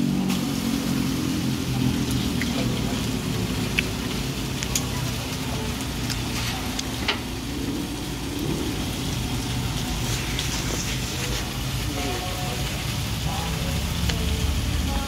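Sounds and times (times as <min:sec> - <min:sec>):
low hum and hiss: 0:00.0 - 0:15.0
wet chewing and lip-smacking: 0:01.9 - 0:05.2.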